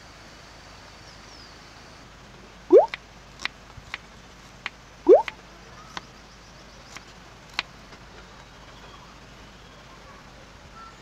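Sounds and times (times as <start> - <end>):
sharp drip ticks: 2.7 - 3.0, 4.6 - 5.4
water drops plopping: 2.7 - 3.0, 5.1 - 5.4.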